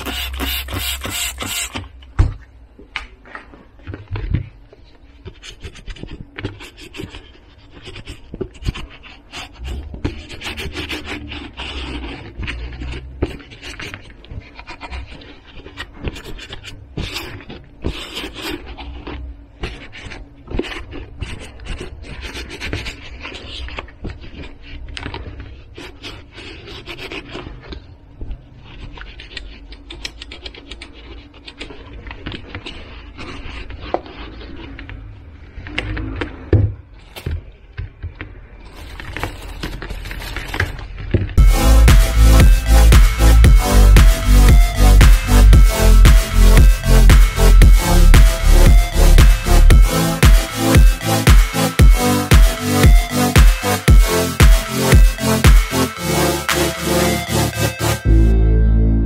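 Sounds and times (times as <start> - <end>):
handling noise rubbing and scraping: 0.0 - 2.0, 28.6 - 58.1.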